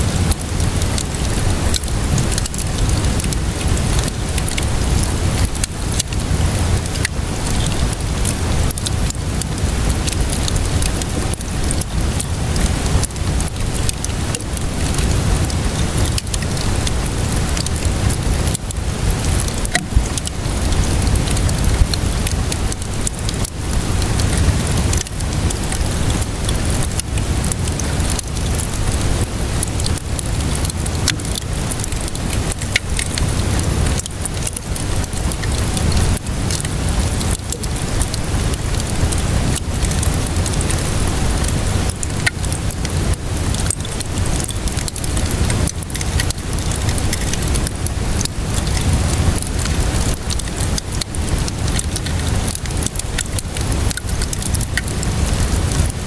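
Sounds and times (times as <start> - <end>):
fire crackling and popping: 0.0 - 56.0
steady rainfall: 0.0 - 56.0
low rumble: 17.7 - 22.2.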